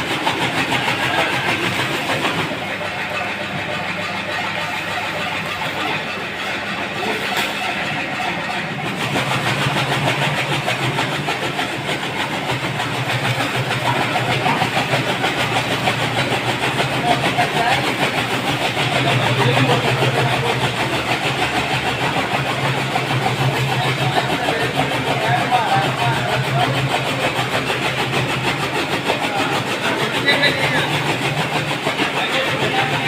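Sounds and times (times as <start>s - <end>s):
chaff cutter running: 0.0s - 33.0s.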